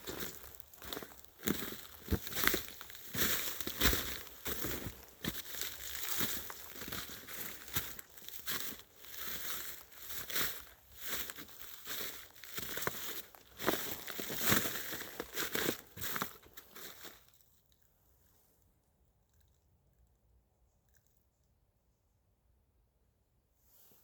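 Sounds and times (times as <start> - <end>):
footsteps crunching over ground: 0.0 - 17.4.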